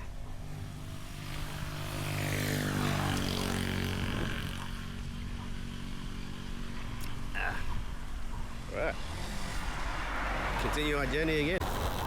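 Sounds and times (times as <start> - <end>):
vehicle driving past: 8.5 - 11.6.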